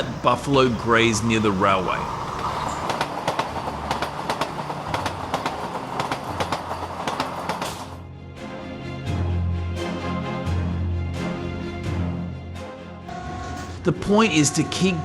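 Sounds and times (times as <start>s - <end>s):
train rumble: 0.0s - 8.0s
train wheels clicking on rails: 0.0s - 8.0s.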